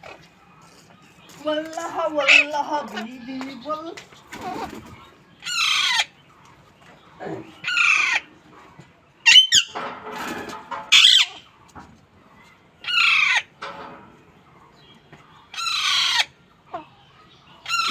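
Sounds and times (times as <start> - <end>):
parrot squawking: 5.4 - 6.2, 7.6 - 8.3, 9.2 - 9.8, 10.9 - 11.4, 12.8 - 13.5, 15.5 - 16.4.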